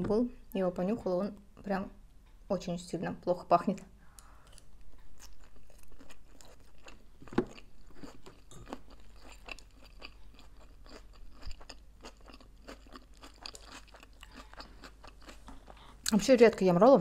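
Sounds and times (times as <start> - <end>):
chewing with small clicks: 4.1 - 16.2.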